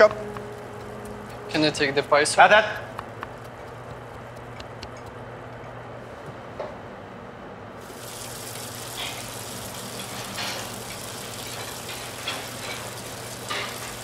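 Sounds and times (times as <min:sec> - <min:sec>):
food sizzling in a pan: 0:07.8 - 0:14.0
frying crackles: 0:07.8 - 0:14.0.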